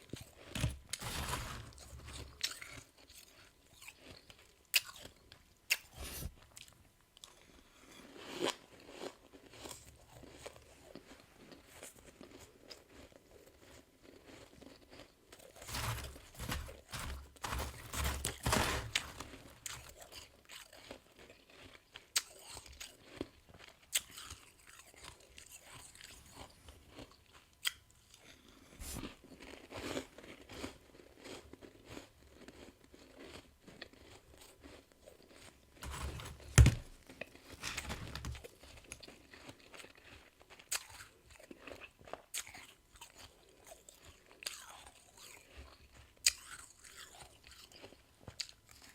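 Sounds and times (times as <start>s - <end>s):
person chewing crunchy frost: 0.0s - 48.9s.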